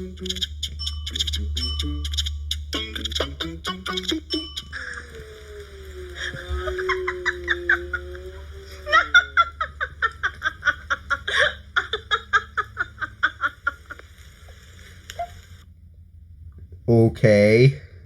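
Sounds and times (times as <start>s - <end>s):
person laughing: 2.8s - 5.4s, 6.2s - 14.0s.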